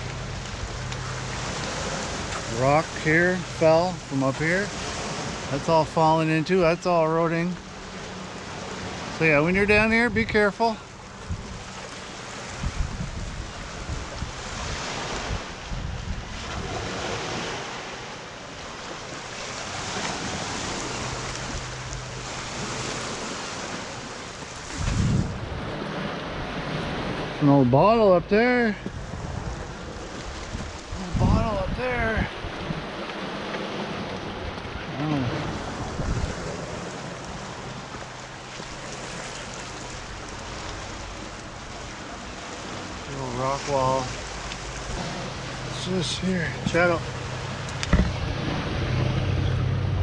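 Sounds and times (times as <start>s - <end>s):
waves washing against rocks: 0.0s - 27.7s, 28.3s - 50.0s
wind gusting on microphone: 7.6s - 18.0s, 19.0s - 27.8s, 28.8s - 50.0s.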